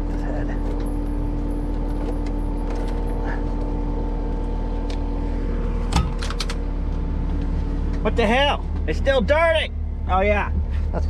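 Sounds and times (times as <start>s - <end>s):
diesel engine running: 0.0s - 11.0s
sharp clunk and clicks: 5.9s - 6.6s.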